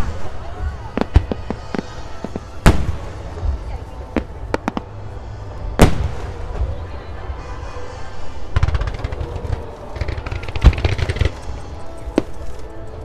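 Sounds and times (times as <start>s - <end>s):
fireworks crackling pops: 0.0s - 5.0s, 8.5s - 13.0s
fireworks booming: 0.0s - 12.6s
music playing: 0.0s - 13.0s.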